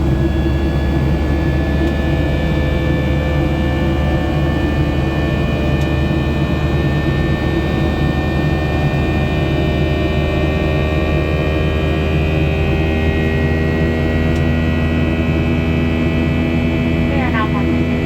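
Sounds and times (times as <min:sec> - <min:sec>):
airflow over fuselage: 0:00.0 - 0:02.5
steady whining tones: 0:00.0 - 0:10.3
jet engine cabin drone: 0:00.0 - 0:18.0.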